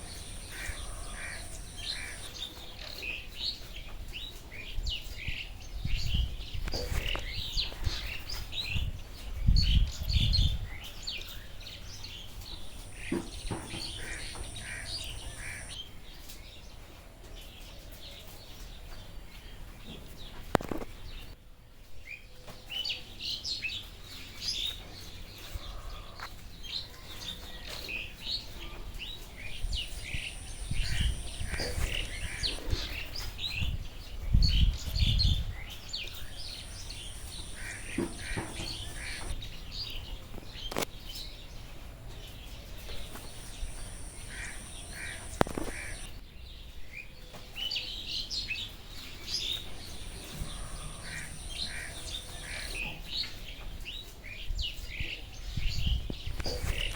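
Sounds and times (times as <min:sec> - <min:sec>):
birds chirping: 0:00.0 - 0:08.9, 0:09.5 - 0:15.8, 0:28.4 - 0:46.4, 0:48.4 - 0:53.9.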